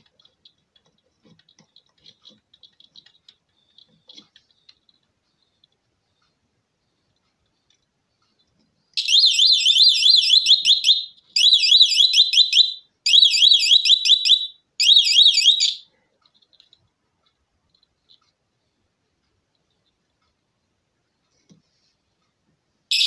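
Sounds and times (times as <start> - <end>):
electronic buzzer warbling alarm: 9.0 - 15.8.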